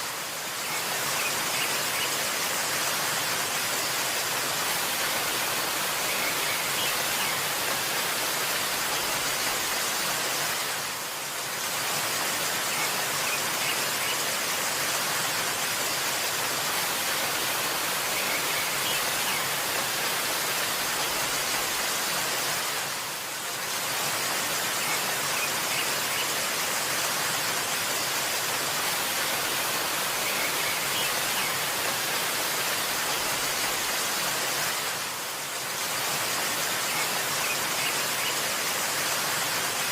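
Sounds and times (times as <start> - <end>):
waterfall rushing: 0.0 - 39.9
faint bird chirps: 29.5 - 31.7.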